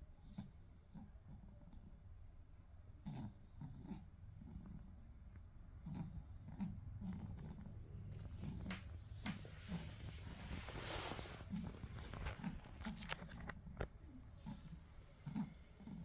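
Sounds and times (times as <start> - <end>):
dog snoring and snorting: 0.1 - 2.2, 2.9 - 16.0.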